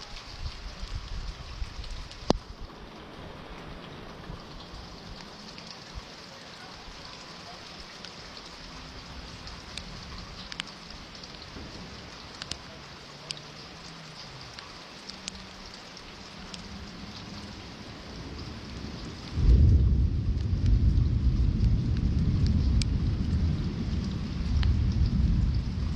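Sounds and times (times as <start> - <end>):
sharp taps of raindrops: 0.0 - 25.9
steady rain falling: 0.0 - 25.9
thunder rumble: 8.9 - 12.8, 16.4 - 25.9.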